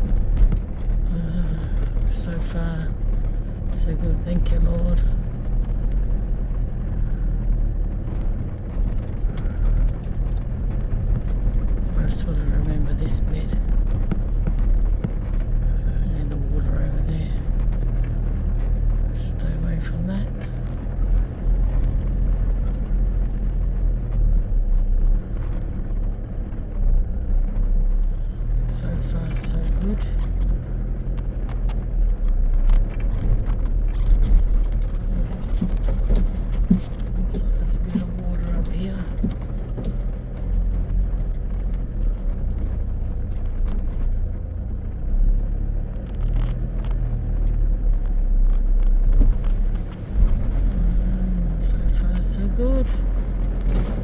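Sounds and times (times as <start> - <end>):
wheels knocking and rattling: 0.0 - 19.4, 29.8 - 51.1
vehicle engine running low rumble: 0.0 - 54.0.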